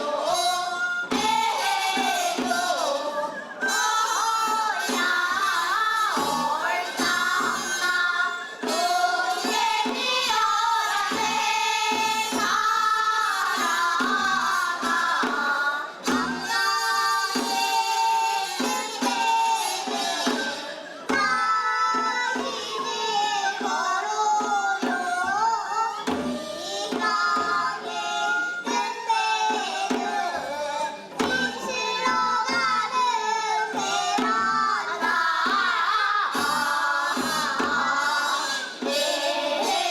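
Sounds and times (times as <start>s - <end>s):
steady drum beats: 0.0s - 39.9s
women singing folk song: 0.0s - 39.9s.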